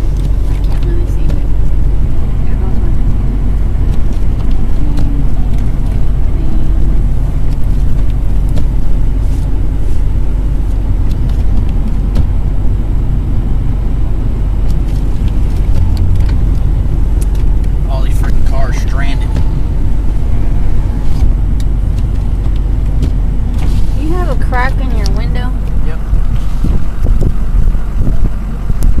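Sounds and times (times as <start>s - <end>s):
car engine and tyres rumbling: 0.0s - 29.0s.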